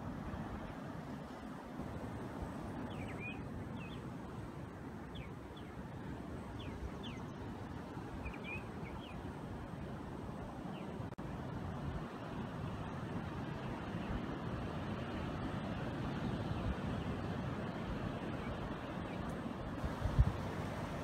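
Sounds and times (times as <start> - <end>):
birds chirping: 2.8 - 4.0, 6.5 - 7.6, 8.2 - 9.3.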